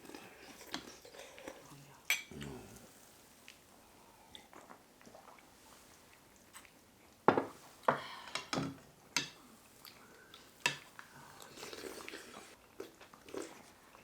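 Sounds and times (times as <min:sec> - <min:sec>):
chewing: 0:00.0 - 0:02.8, 0:04.3 - 0:07.2, 0:09.7 - 0:14.0.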